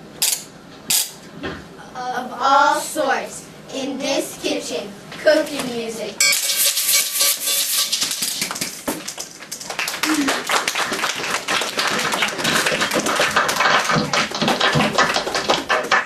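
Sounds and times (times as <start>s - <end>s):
people clapping: 8.1s - 16.0s.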